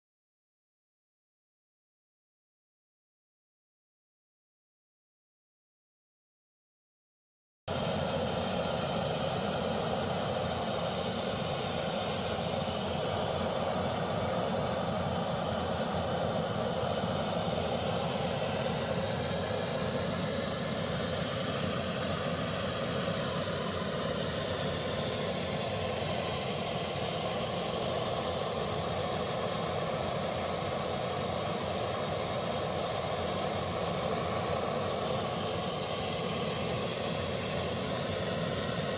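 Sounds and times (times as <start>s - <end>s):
steady hissing noise: 7.7s - 38.9s.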